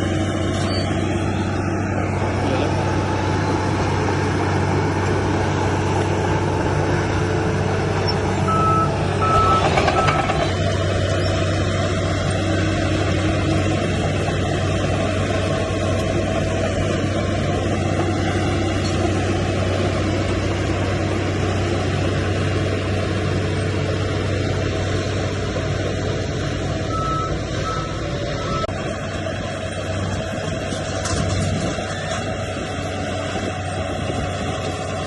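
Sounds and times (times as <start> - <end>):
diesel machinery engine hum: 0.0 - 35.0.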